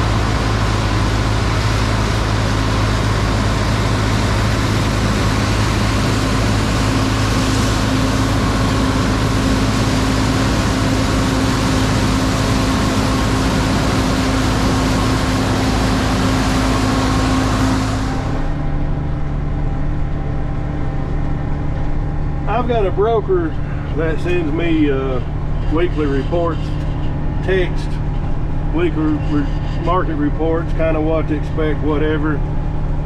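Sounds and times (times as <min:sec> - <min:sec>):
tractor diesel engine hum: 0:00.0 - 0:33.0
loud even rushing noise: 0:04.0 - 0:19.2.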